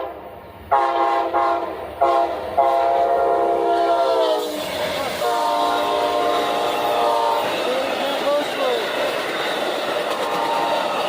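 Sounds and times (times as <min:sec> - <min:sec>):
locomotive air horn blasts: 0:00.0 - 0:07.5, 0:10.2 - 0:10.9.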